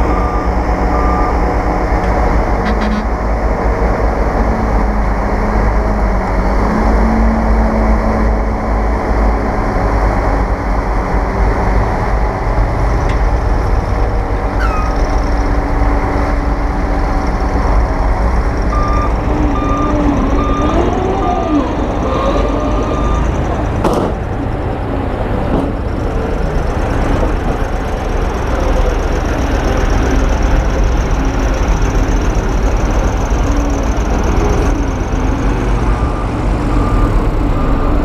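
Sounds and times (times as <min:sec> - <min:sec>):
reversing alarm beeping: 0:00.0 - 0:01.5, 0:02.1 - 0:03.1, 0:18.6 - 0:23.6, 0:35.8 - 0:38.0
heavy diesel machinery rumbling: 0:00.0 - 0:38.0.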